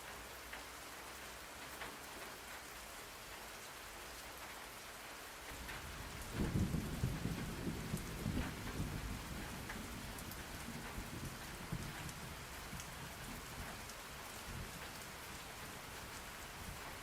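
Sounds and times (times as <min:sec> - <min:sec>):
rain drop ticks: 0:00.0 - 0:03.5, 0:05.5 - 0:17.0
steady rain falling: 0:00.0 - 0:17.0
thunder rumble: 0:05.6 - 0:15.7.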